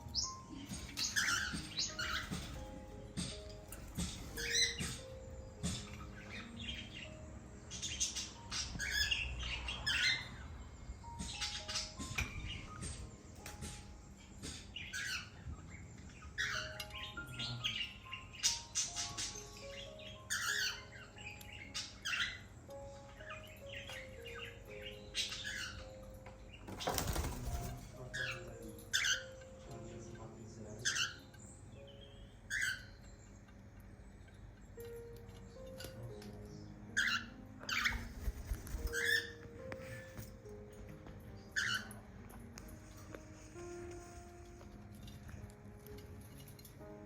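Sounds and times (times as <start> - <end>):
cockatiels chirping and squawking: 0.0 - 10.6, 11.2 - 34.9, 35.6 - 40.5, 41.4 - 42.1
wing flapping: 26.7 - 28.0, 37.9 - 39.3.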